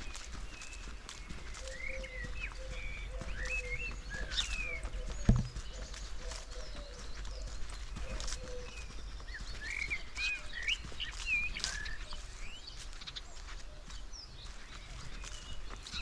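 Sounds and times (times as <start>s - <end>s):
bird chirps: 0.0s - 16.0s
footsteps crunching on forest floor: 0.0s - 16.0s.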